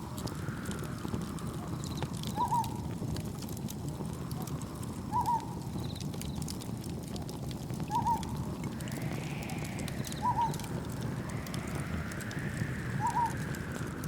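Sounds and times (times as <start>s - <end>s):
soft wave wash: 0.0s - 2.0s, 8.1s - 14.0s
campfire crackling: 0.0s - 14.0s
wind and surf rumble: 0.0s - 14.0s.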